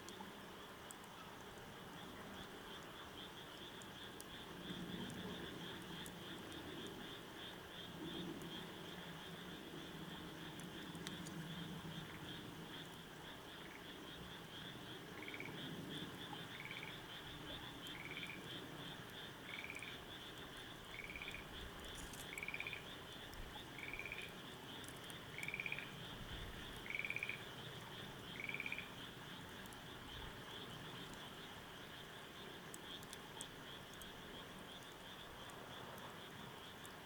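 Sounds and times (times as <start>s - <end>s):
frog trilled call: 22.3s - 22.8s, 26.9s - 27.4s, 28.4s - 28.9s.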